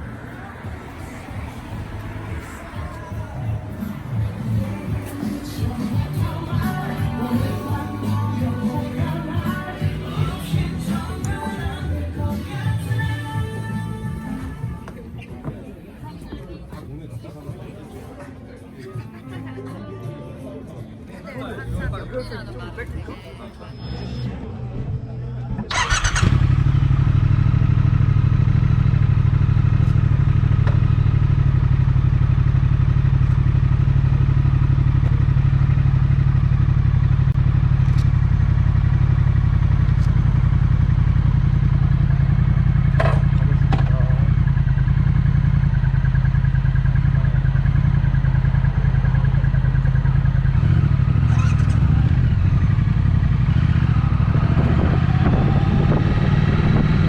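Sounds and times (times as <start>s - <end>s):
motorcycle engine idling: 25.7s - 57.0s.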